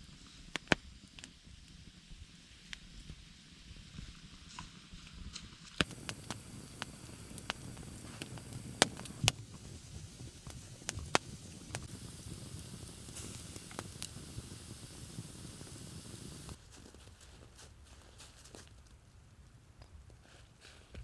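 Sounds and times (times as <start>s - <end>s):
campfire crackling and popping: 5.8s - 16.6s.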